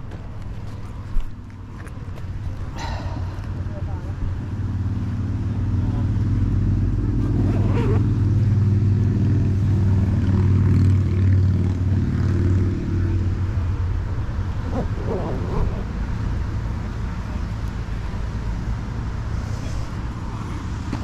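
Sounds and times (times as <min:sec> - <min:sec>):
vehicle engine droning: 0:00.0 - 0:21.0.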